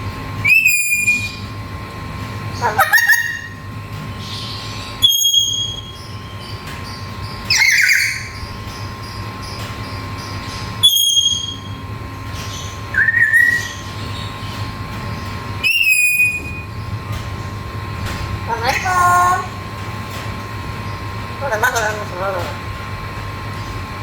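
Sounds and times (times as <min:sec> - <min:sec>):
parrot whistled calls: 0:00.4 - 0:01.4, 0:02.6 - 0:03.6, 0:05.0 - 0:06.5, 0:07.5 - 0:08.5, 0:10.8 - 0:11.8, 0:12.9 - 0:13.9, 0:15.6 - 0:16.7.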